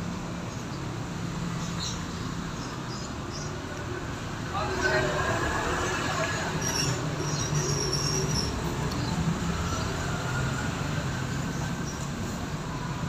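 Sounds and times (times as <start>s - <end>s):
background traffic rumble: 0.0s - 13.0s.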